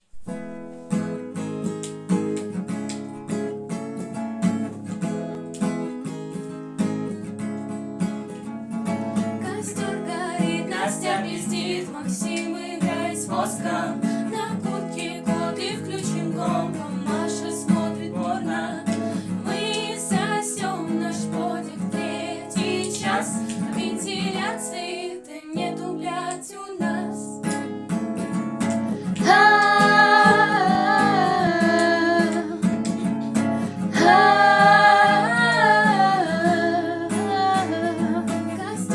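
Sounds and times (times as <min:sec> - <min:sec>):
acoustic guitar strumming: 0:00.1 - 0:24.9, 0:26.9 - 0:38.9
person singing: 0:29.1 - 0:38.9.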